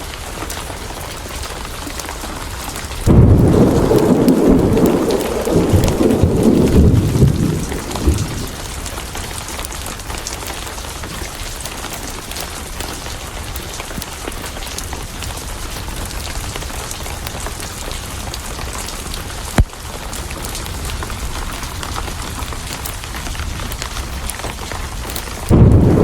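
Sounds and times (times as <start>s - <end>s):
steady rain: 0.0s - 26.0s
thunder rumble: 3.0s - 9.2s, 25.4s - 26.0s.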